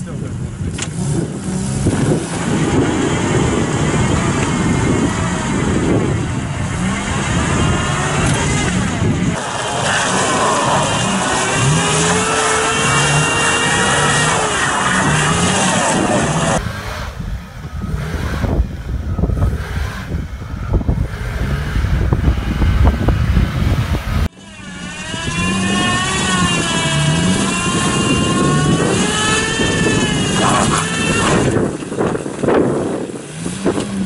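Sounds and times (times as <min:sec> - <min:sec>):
car engines revving hard: 0:00.0 - 0:34.0.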